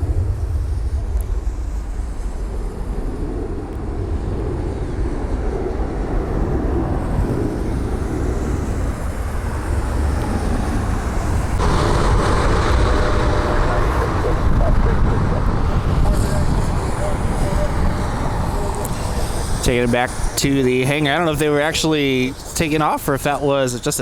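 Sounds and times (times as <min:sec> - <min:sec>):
wind on microphone: 0:00.0 - 0:22.6
distant jet engines rumbling: 0:00.0 - 0:24.0
hissy engine noise: 0:07.9 - 0:24.0.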